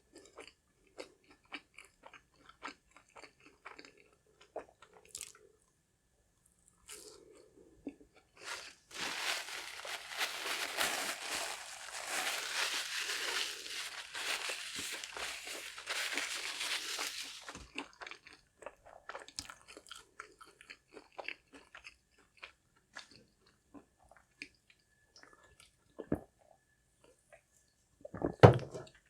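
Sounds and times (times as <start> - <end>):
chewing crispy fried fish: 0.0 - 5.4, 6.8 - 25.8.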